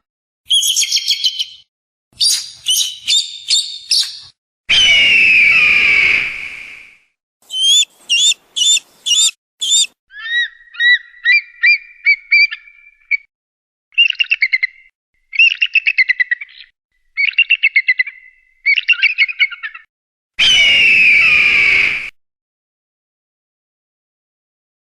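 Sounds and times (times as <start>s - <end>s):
eagle chirping trills: 2.2s - 4.3s, 7.5s - 12.7s
eagle whistled notes: 4.8s - 9.9s
eagle harsh scream: 7.5s - 9.9s.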